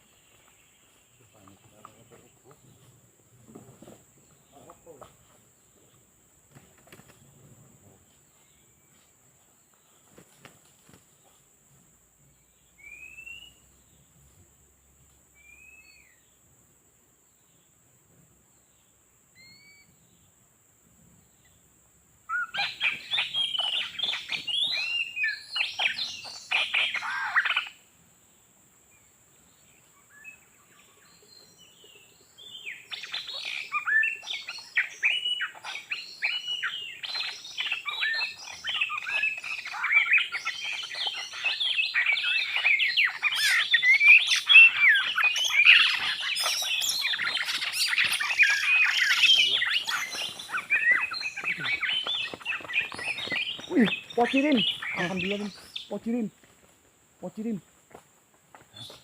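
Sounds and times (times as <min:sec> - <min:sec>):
songbird rapid whistles and chirps: 0:12.6 - 0:13.8, 0:15.4 - 0:16.3, 0:19.4 - 0:20.2, 0:22.3 - 0:27.8, 0:29.6 - 0:56.3.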